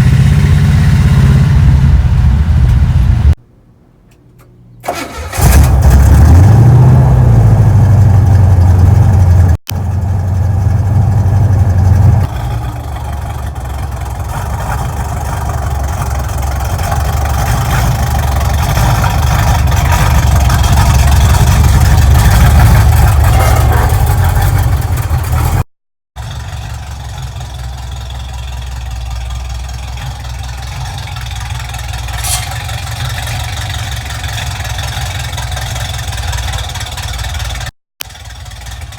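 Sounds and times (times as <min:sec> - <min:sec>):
car engine revving and running: 0:00.0 - 0:03.4, 0:05.3 - 0:38.9.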